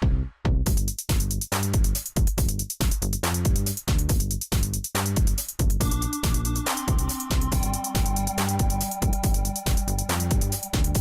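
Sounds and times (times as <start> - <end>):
electronic dance music: 5.0 - 11.0.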